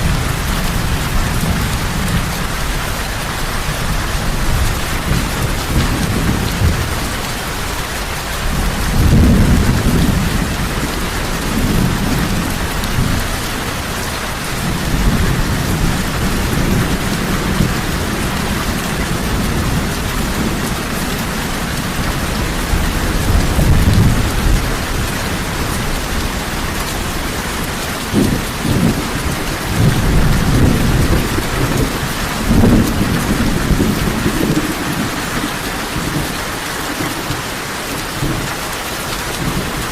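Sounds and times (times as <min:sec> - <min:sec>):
heavy rain: 0:00.0 - 0:39.9
thunder rumbling: 0:00.0 - 0:39.9.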